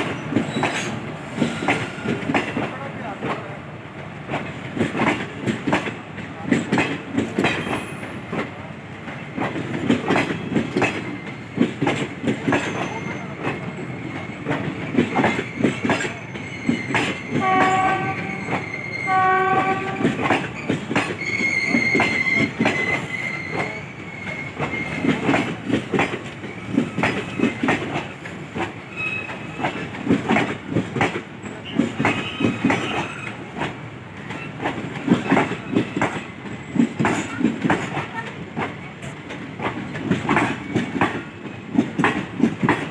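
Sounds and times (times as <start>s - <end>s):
train wheels clattering: 0.0s - 42.9s
train horn blasts: 17.3s - 20.2s.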